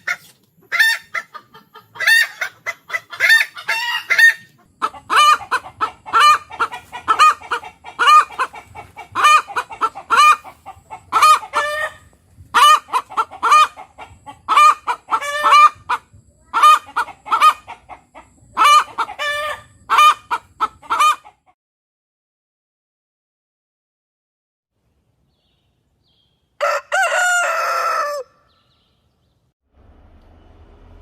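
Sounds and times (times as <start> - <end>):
chicken clucking: 0.0 - 21.6.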